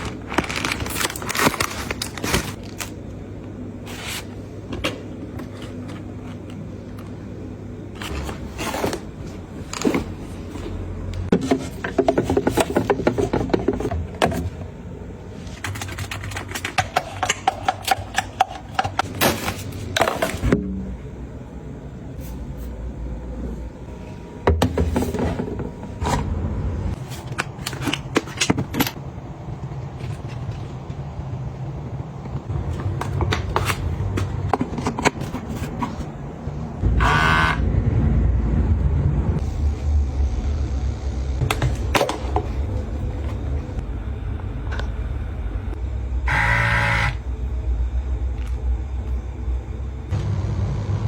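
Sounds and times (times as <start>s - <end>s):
packaging scraping and rustling: 0.0s - 3.0s.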